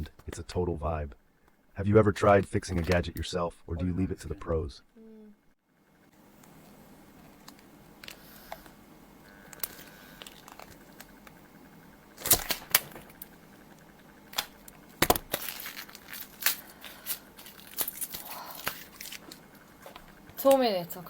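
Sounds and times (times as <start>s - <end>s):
packaging crinkling and rustling: 9.5s - 11.3s, 12.2s - 13.4s, 14.3s - 20.2s.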